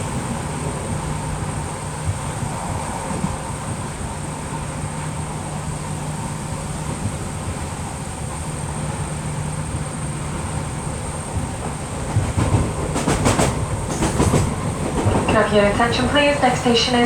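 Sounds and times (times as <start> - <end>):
electric train running: 6.1 - 17.0.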